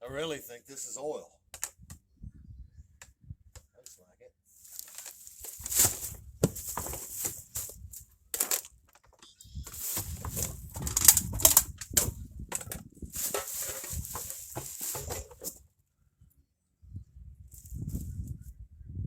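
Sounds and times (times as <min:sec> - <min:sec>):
debris clattering and scraping: 0:04.6 - 0:09.1, 0:09.7 - 0:15.6.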